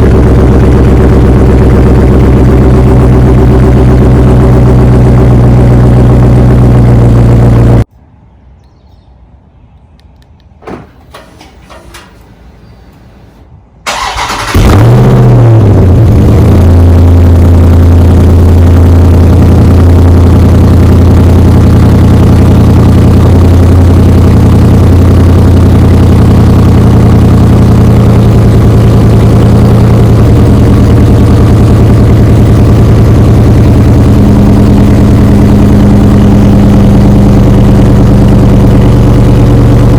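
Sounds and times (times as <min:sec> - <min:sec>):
car engine idling: 0:00.0 - 0:07.9, 0:10.6 - 0:39.9
faint click: 0:09.7 - 0:10.5.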